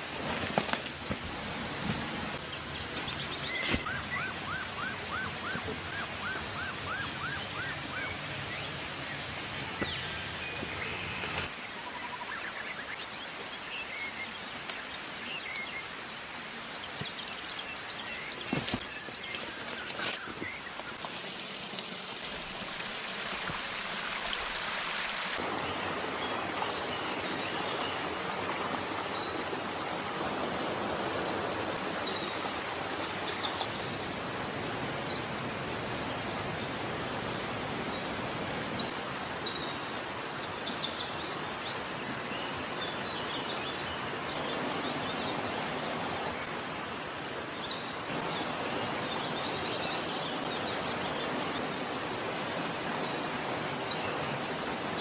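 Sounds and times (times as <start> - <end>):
birds chirping: 2.1 - 21.0.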